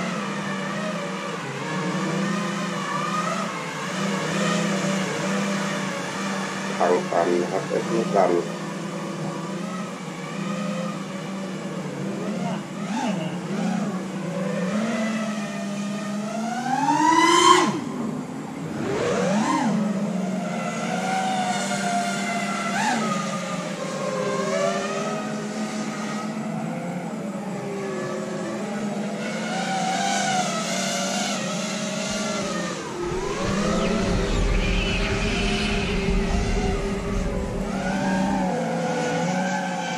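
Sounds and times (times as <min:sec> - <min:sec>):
drone motors whining: 0:31.4 - 0:39.6.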